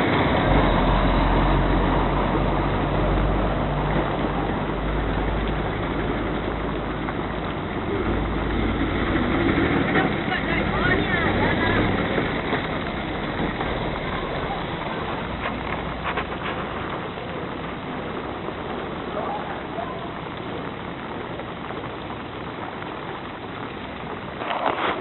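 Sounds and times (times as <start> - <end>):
rain hiss: 0.0 - 25.0
vehicle engine running: 0.0 - 25.0
faint voices: 9.9 - 12.8, 13.4 - 21.7.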